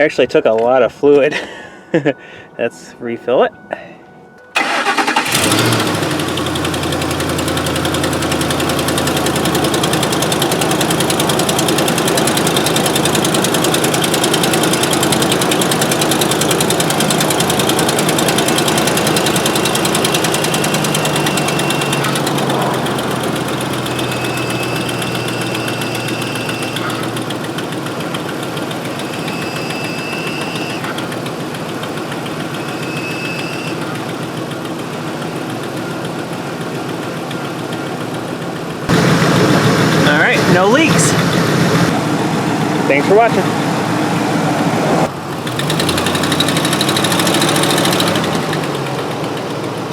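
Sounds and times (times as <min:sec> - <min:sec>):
truck engine idling: 0:04.6 - 0:49.9
brief high whines: 0:24.0 - 0:27.0, 0:28.9 - 0:31.0, 0:32.6 - 0:33.8, 0:38.9 - 0:45.1.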